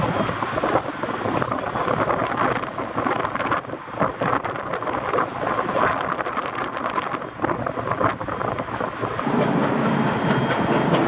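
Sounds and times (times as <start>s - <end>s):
rushing rumble of train: 0.0s - 11.0s
train wheels clacking over rail joints: 0.0s - 11.0s.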